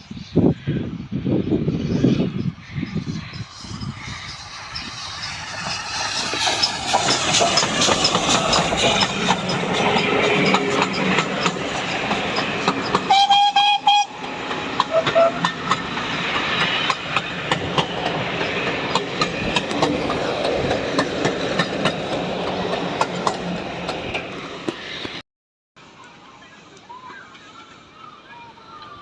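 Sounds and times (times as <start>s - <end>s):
train running noise: 0.0s - 25.2s
train wheels clicking over rail joints: 3.2s - 25.2s
train whistle blast: 13.1s - 14.3s, 14.9s - 15.5s.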